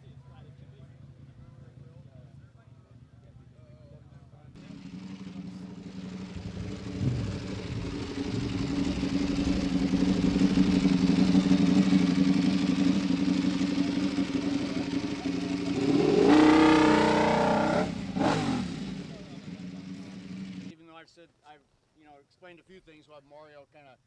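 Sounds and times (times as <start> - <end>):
motorcycle engines running: 0.0 - 20.7
motorcycle engine revving: 4.6 - 20.7.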